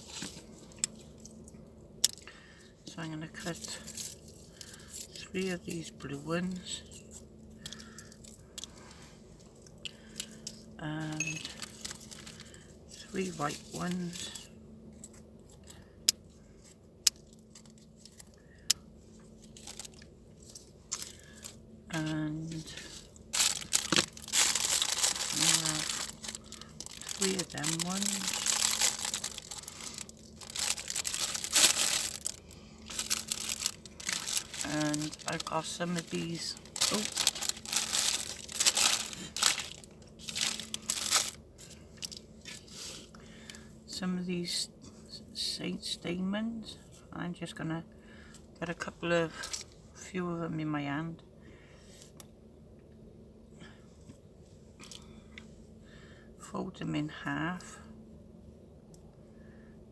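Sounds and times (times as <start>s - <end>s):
packaging crinkling: 11.1s - 12.6s, 19.4s - 42.7s.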